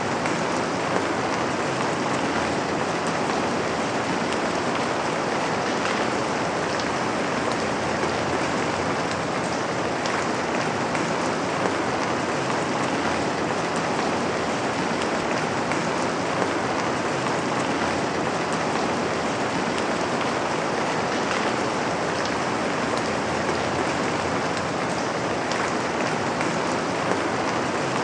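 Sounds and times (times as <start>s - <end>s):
rain on a window: 0.0s - 28.0s.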